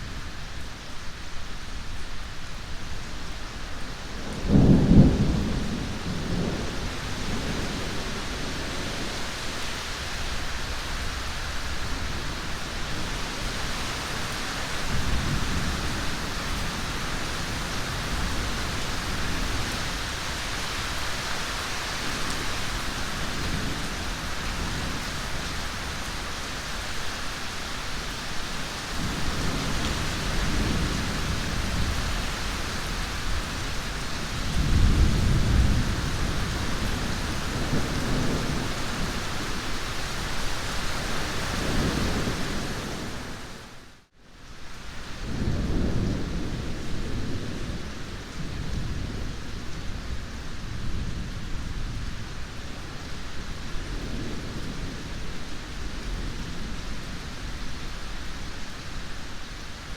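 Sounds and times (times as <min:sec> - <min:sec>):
heavy rain: 0:00.0 - 0:59.9
thunder clap and rumbles: 0:04.2 - 0:09.4, 0:28.9 - 0:39.6, 0:45.2 - 0:52.2.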